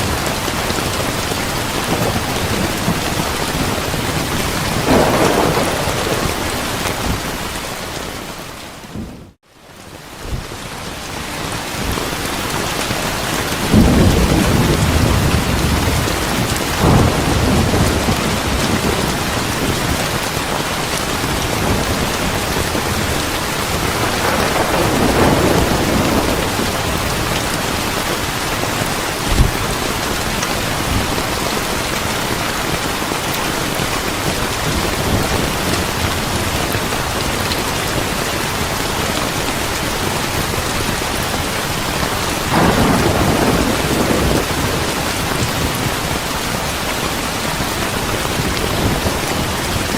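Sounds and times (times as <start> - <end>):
thunder rumbling: 0.0 - 9.4, 11.6 - 33.0, 33.6 - 49.9
heavy rain: 0.0 - 49.9
sharp thunder crack: 4.7 - 7.5, 23.7 - 27.7, 42.5 - 45.9.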